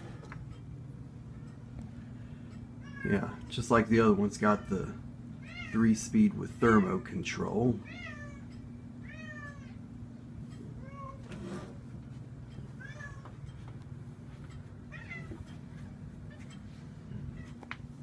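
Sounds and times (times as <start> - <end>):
cat meowing: 7.8 - 9.8, 12.8 - 13.2.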